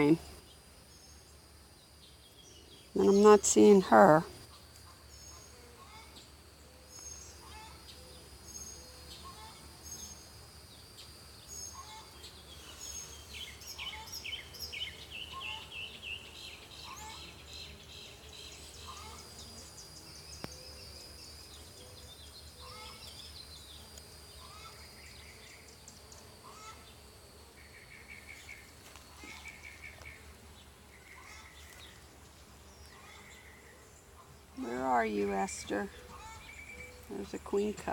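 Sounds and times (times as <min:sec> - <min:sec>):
high insect drone: 0:00.0 - 0:37.9
birds chirping: 0:11.0 - 0:37.9.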